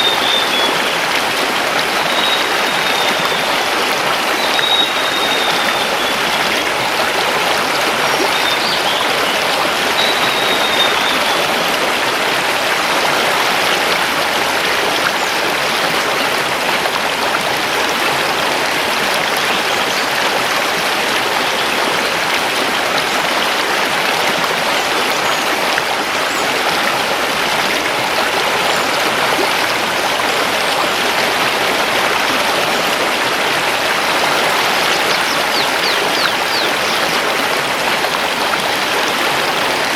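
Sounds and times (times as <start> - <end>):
faint bird whistle: 0.0 - 1.0, 2.0 - 3.6, 4.3 - 6.6, 10.0 - 11.4, 34.1 - 39.8
river rushing over stones: 0.0 - 39.9.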